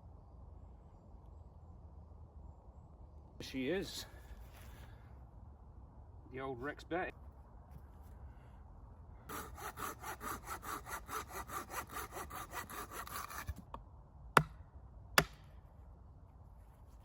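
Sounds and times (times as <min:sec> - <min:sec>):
hand saw cutting wood: 0:09.3 - 0:13.6.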